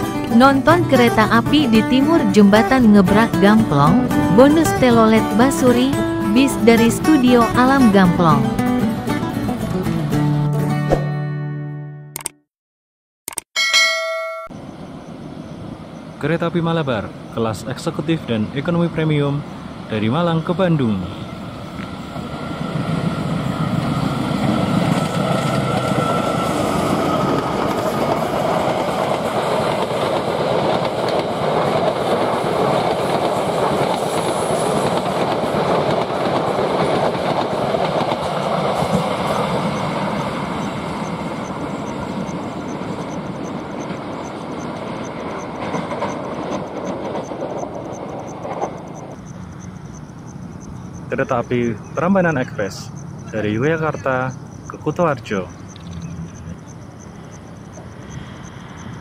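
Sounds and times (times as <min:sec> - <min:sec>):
train wheels on rails: 0:21.1 - 0:59.0.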